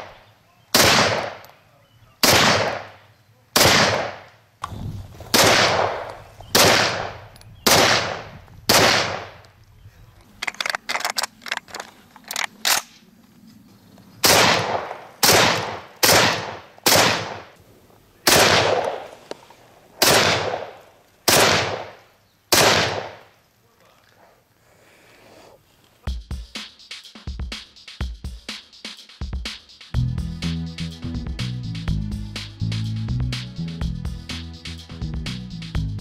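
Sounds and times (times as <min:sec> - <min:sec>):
rifle shots echoing: 0:00.0 - 0:01.5, 0:02.2 - 0:09.4, 0:14.2 - 0:17.6, 0:18.2 - 0:19.2, 0:20.0 - 0:23.3
sharp rifle clicks: 0:10.3 - 0:13.0.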